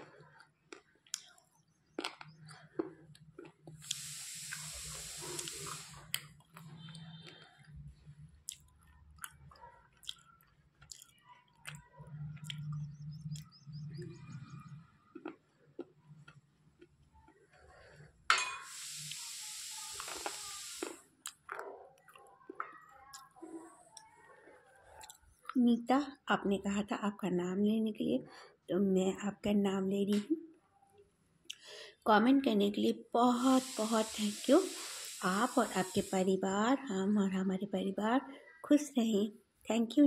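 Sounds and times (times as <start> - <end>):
chewing and crunching: 0.0 - 4.1, 8.4 - 13.6, 15.0 - 18.0.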